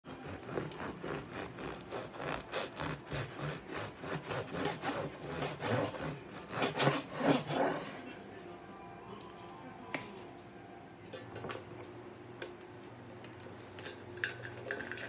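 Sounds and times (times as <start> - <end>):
knife sawing through bread: 0.1 - 8.0.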